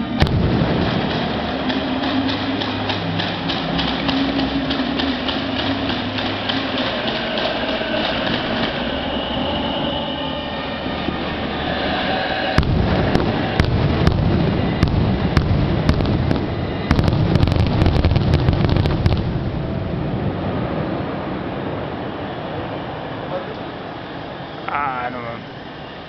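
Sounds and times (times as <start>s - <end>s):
fireworks bangs and crackles: 0.0s - 8.8s, 12.6s - 19.7s
fireworks rumble: 0.0s - 9.6s, 10.6s - 23.7s.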